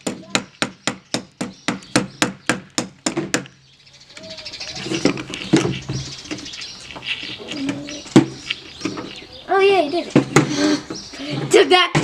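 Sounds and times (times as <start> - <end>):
hammer driving nail into wood: 0.0 - 3.5
handling noise: 4.2 - 11.4.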